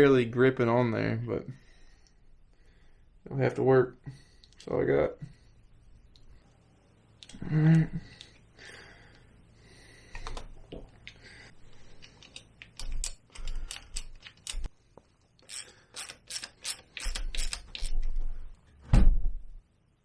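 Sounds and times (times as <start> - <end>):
hand tools clicking on metal: 15.4 - 18.0.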